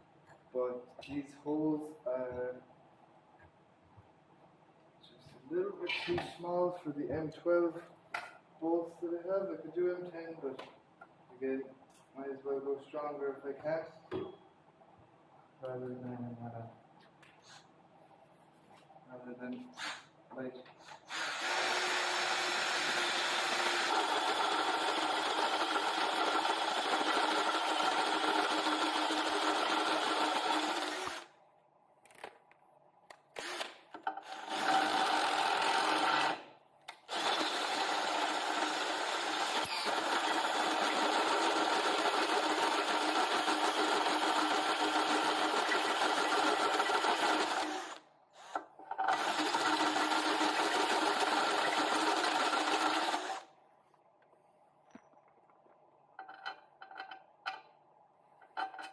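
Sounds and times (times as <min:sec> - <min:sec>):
electric drill boring steel: 0:21.1 - 0:31.3, 0:33.4 - 0:36.4, 0:37.1 - 0:48.0, 0:49.1 - 0:53.4.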